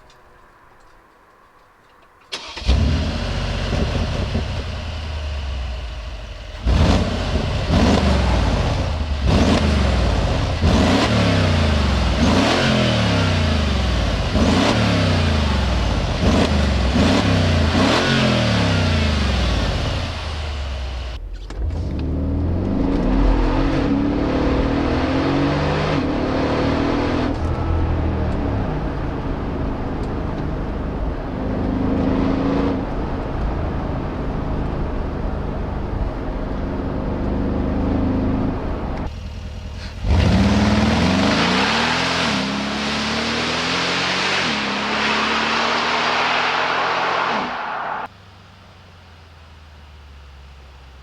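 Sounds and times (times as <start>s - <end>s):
car engine accelerating hard: 2.3s - 50.0s.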